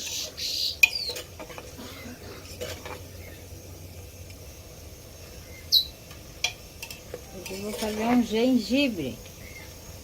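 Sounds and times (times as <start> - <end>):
bird chirp: 0.0 - 1.2, 5.4 - 6.0
dough frying in oil: 0.0 - 10.0.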